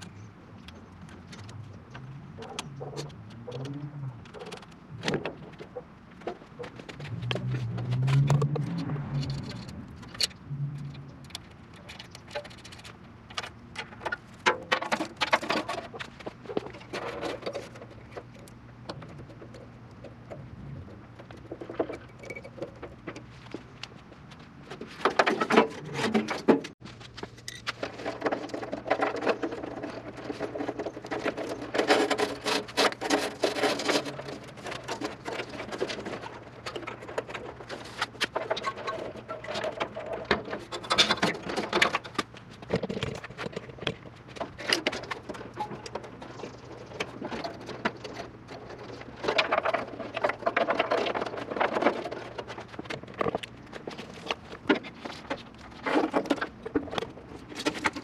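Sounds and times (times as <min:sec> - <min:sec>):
wiring harness rustling and clicking: 0:21.1 - 0:58.0.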